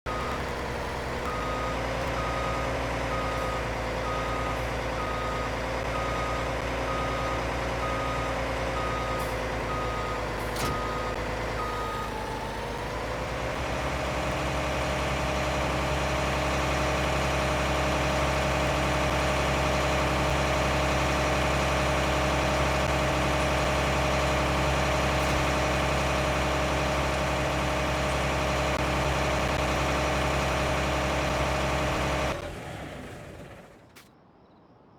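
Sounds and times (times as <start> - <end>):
tractor engine running: 0.0 - 34.1
reversing alarm beeping: 0.1 - 13.1.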